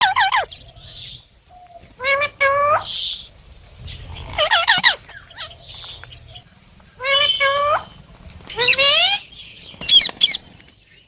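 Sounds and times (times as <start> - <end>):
parrot harsh calls: 0.0 - 0.6, 4.1 - 5.6, 8.6 - 9.3.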